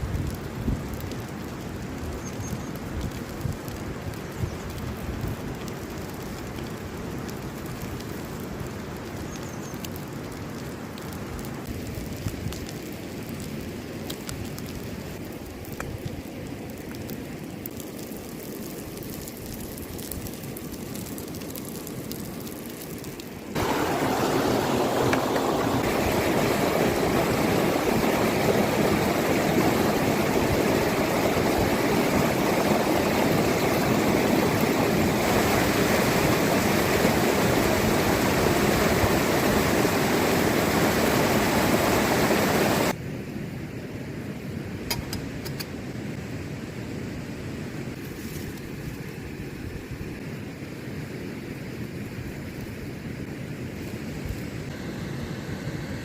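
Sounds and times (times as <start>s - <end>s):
running water rushing: 20.8s - 43.0s.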